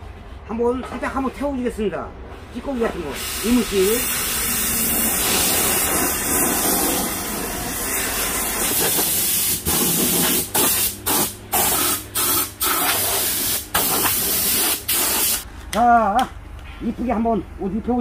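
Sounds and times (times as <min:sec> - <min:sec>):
hissing jet of gas: 0:03.1 - 0:15.4.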